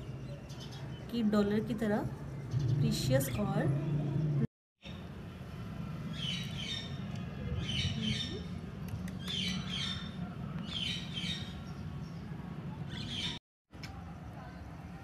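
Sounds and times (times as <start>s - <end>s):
small birds chirping: 6.1s - 13.4s.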